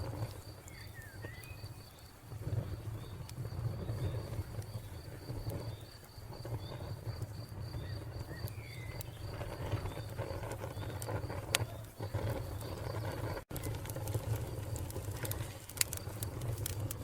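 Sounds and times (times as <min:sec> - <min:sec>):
cricket chirping: 0:00.0 - 0:13.4
wood fire crackling and popping: 0:00.0 - 0:17.0
faint bird chirps: 0:00.4 - 0:13.0.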